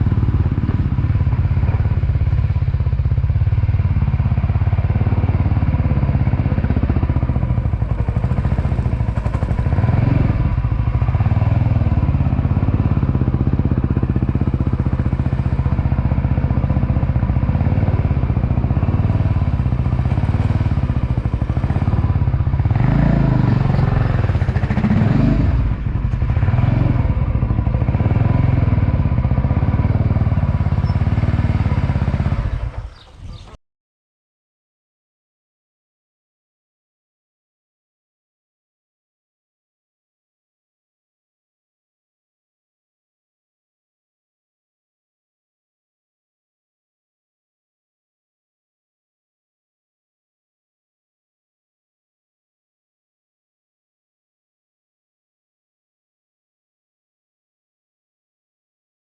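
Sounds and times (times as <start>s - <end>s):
motorcycle engine running: 0.0s - 33.6s.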